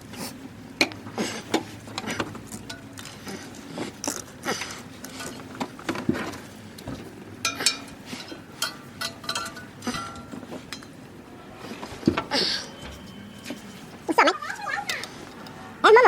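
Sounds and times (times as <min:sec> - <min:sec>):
metal tools clinking: 0:02.5 - 0:03.3, 0:07.4 - 0:11.0.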